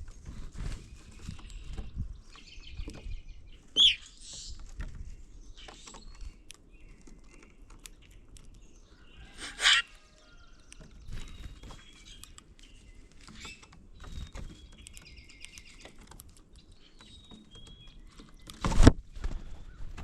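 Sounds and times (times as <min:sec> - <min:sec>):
birds whistling: 0:01.3 - 0:04.6, 0:08.8 - 0:15.9
bird trill: 0:03.7 - 0:04.6, 0:08.9 - 0:16.0, 0:16.6 - 0:18.6.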